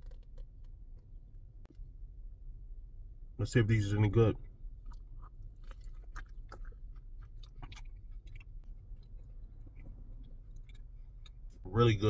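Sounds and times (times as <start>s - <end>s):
person chewing greens: 4.8s - 11.6s.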